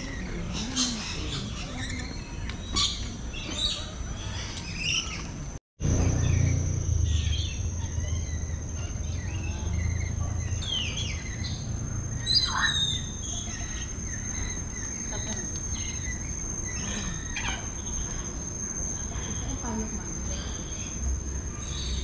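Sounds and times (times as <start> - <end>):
birds chirping and calling: 0.0 - 22.0
high-pitched insect-like drone: 5.8 - 22.0.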